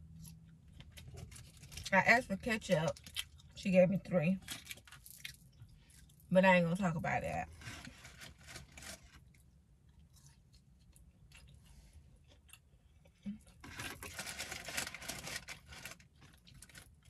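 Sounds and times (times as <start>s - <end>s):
person chewing crunchy food: 4.4s - 6.3s, 7.5s - 17.0s.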